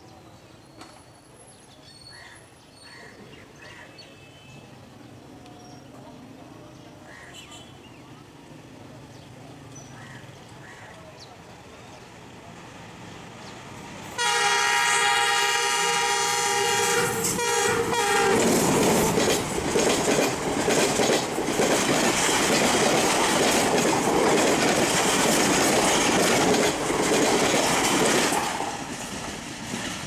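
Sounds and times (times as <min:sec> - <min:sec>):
train rushing past: 0:11.3 - 0:30.0
locomotive horn blast: 0:14.2 - 0:18.5.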